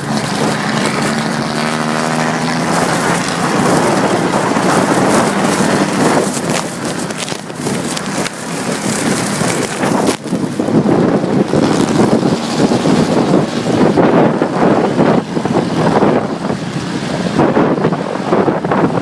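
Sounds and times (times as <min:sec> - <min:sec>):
motorcycle engine: 0:00.0 - 0:19.0
road noise: 0:00.0 - 0:19.0
wind buffeting microphone: 0:00.0 - 0:19.0.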